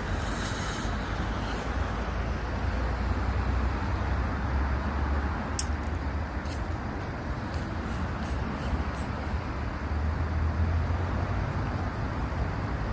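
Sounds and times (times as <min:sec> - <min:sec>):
passing vehicles rumbling: 0:00.0 - 0:12.9
sharp clicks: 0:05.6 - 0:05.8.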